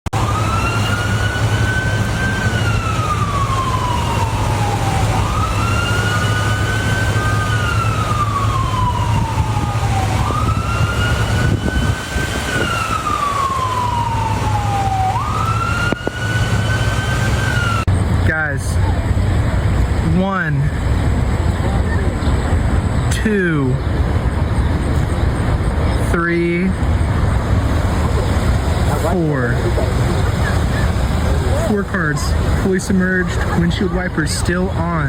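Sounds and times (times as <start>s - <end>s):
siren wailing: 0.1s - 17.9s
steady low rumble: 0.2s - 35.0s.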